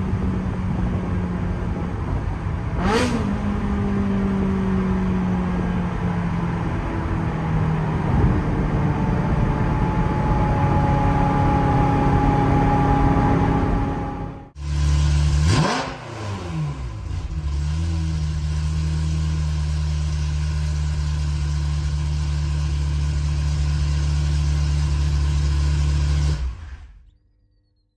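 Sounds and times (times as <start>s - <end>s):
car engine and exhaust: 0.0s - 27.9s
engine idling: 16.8s - 27.1s.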